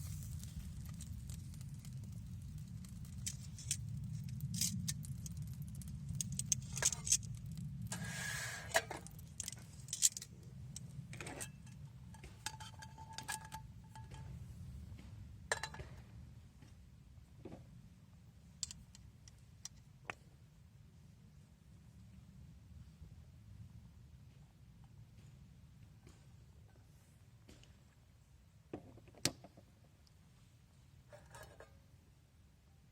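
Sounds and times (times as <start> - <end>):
low steady rumble: 0.0 - 15.5.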